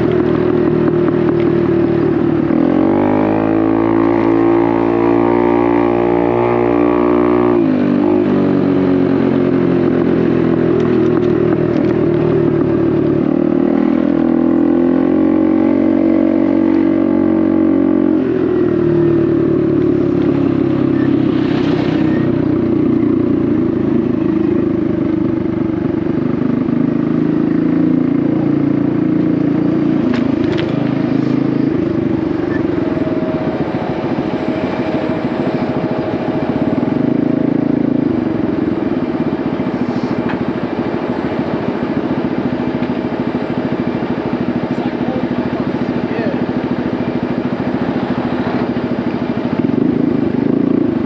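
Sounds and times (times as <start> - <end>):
small motorcycle engine running: 0.0 - 51.0.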